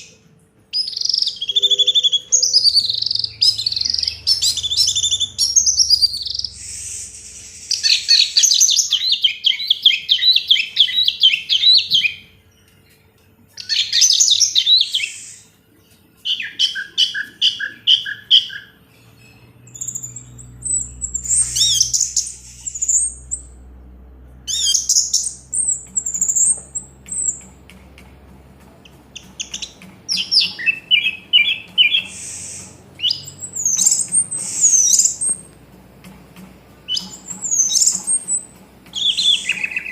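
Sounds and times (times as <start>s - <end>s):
thrush warbling song: 13.6s - 39.9s.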